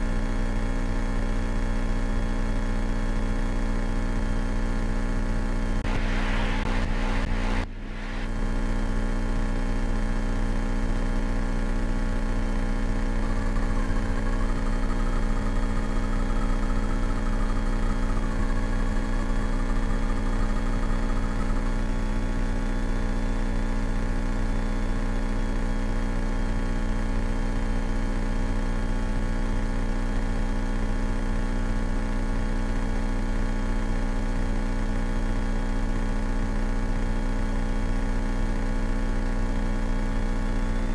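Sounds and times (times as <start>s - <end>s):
small plane engine drone: 5.7s - 24.1s.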